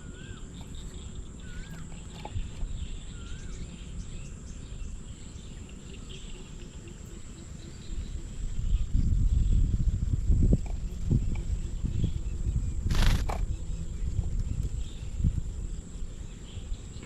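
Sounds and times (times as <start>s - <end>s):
faint wavering bird chirps: 0.0s - 9.8s.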